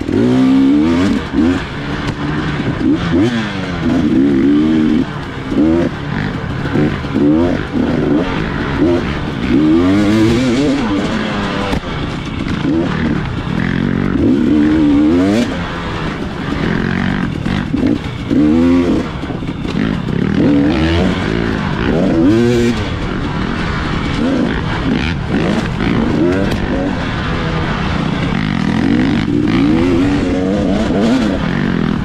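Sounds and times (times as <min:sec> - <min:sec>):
dirt bike engine revving: 0:00.0 - 0:32.0
rushing noise: 0:00.0 - 0:32.0.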